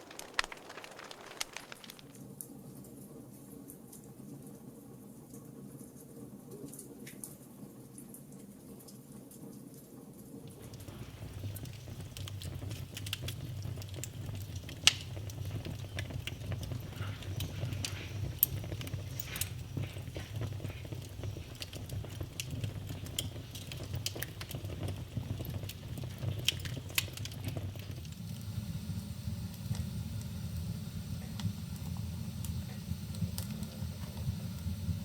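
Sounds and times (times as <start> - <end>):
logs crackling and popping: 0.0 - 2.2, 10.5 - 35.0
low rumble of flames: 0.0 - 2.2, 10.4 - 35.0.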